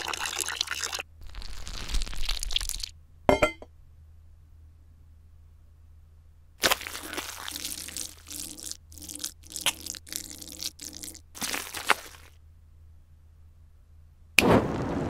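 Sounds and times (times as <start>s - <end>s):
crunching and crackling: 1.2s - 2.9s, 6.6s - 12.4s
sharp crack: 14.4s - 15.0s.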